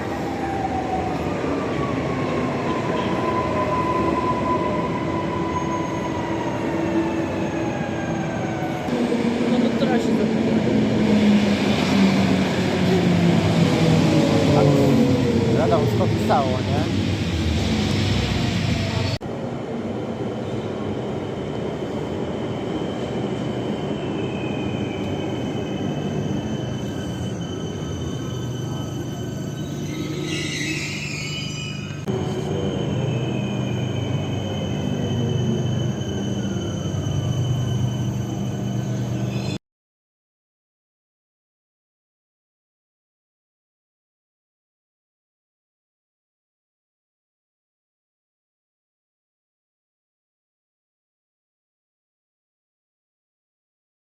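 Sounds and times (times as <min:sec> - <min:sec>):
high-pitched wheel squeal: 0:24.1 - 0:39.6.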